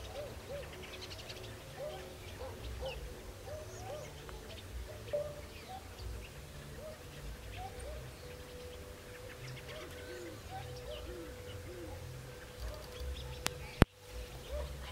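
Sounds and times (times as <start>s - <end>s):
low hooting bird calls: 0.0s - 14.9s.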